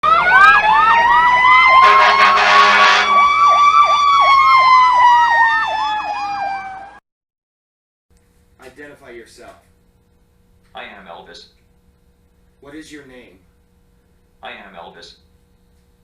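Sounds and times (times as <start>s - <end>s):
fast siren yelp: 0.0s - 7.0s
siren wail: 0.0s - 7.0s
vehicle horn blast: 1.8s - 3.3s.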